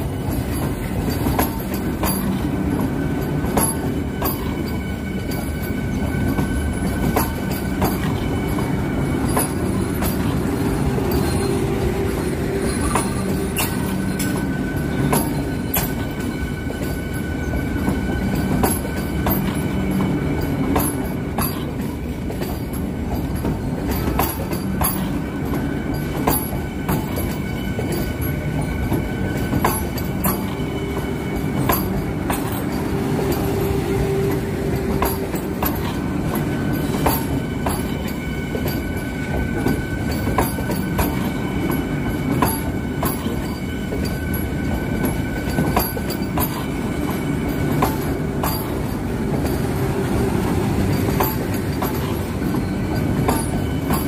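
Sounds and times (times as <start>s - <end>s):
train wheels rumbling on rail: 0.0s - 54.0s
wheels clacking over rail joints: 0.0s - 54.0s.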